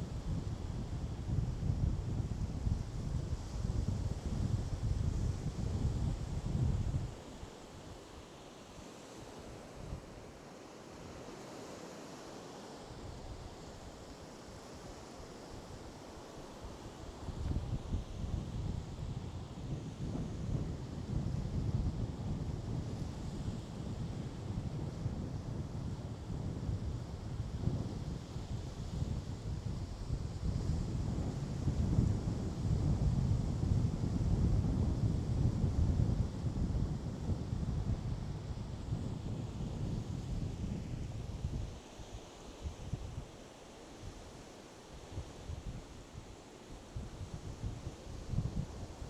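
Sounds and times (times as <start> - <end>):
wind buffeting microphone: 0.0 - 7.2, 17.2 - 41.8, 47.0 - 49.0.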